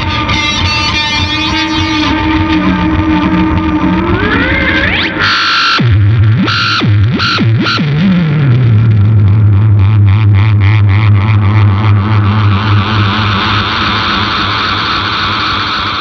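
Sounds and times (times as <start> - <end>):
electric guitar effects noise: 0.0 - 16.0.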